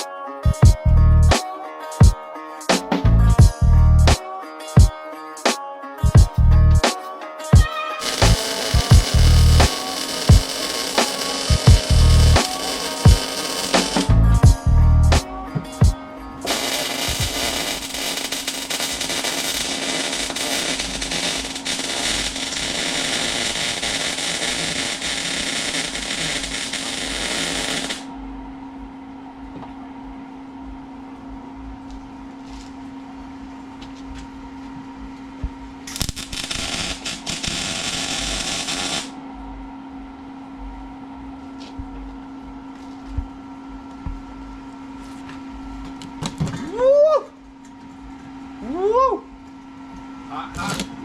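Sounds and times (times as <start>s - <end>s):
welder arc crackling: 8.0s - 14.5s, 16.4s - 28.1s, 35.9s - 39.2s
steady hum: 8.0s - 51.0s.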